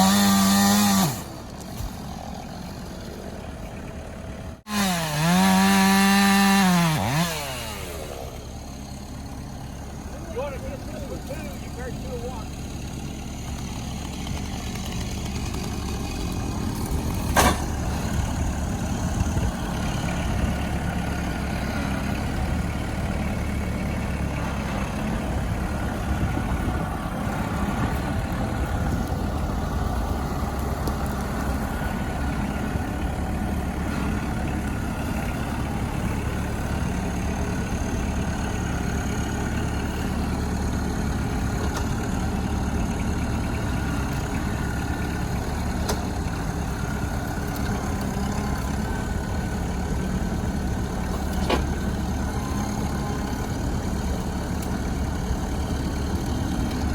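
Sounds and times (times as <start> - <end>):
tractor diesel engine idling: 0.0 - 56.9.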